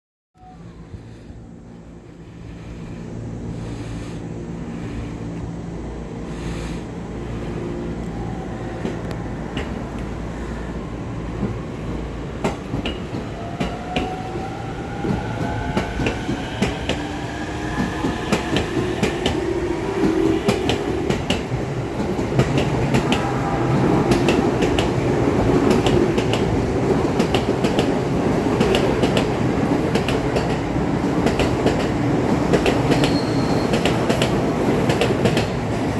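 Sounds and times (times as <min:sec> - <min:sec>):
train wheels clacking over rail joints: 0:17.8 - 0:35.9.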